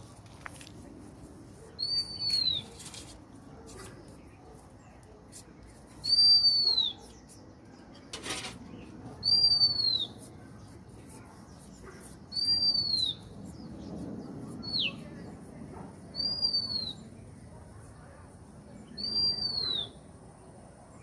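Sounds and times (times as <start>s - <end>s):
bird whistle call: 6.0s - 7.0s, 9.2s - 10.2s, 12.3s - 13.2s, 16.2s - 17.0s, 19.0s - 19.9s.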